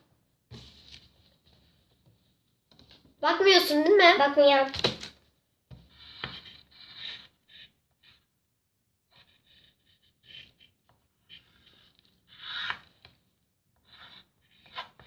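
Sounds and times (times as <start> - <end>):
pen scratching on paper: 5.9 - 8.2, 9.1 - 13.0, 13.8 - 15.0.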